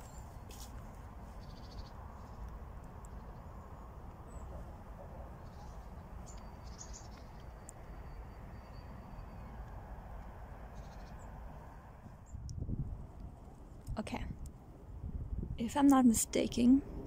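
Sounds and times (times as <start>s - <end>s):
faint bird chirps: 1.4s - 2.5s, 5.3s - 9.7s, 10.8s - 11.4s
steady low rumble: 9.5s - 17.0s.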